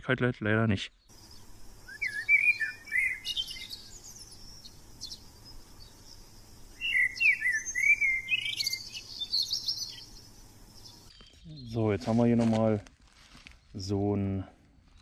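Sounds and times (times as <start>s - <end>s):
small birds chirping: 0.7s - 12.4s.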